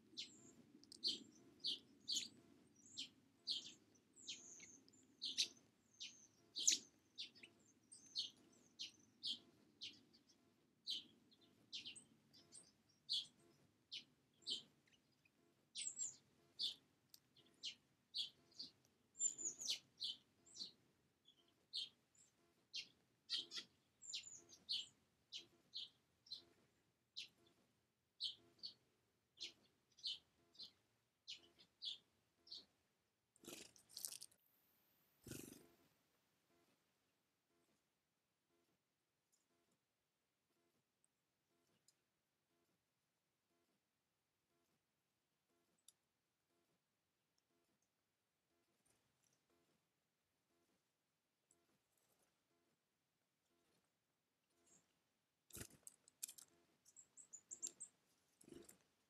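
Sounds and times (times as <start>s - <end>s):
small bird chirping: 0.0s - 27.6s, 28.2s - 32.8s, 33.4s - 34.4s, 35.0s - 35.8s, 54.5s - 58.9s.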